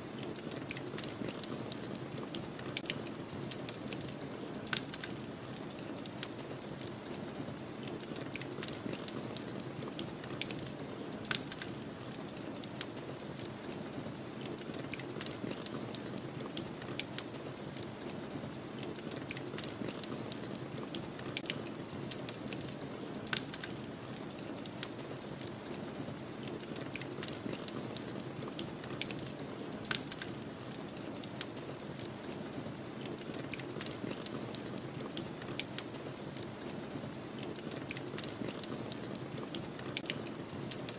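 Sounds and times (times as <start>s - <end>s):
wood fire crackling and popping: 0.1s - 40.9s.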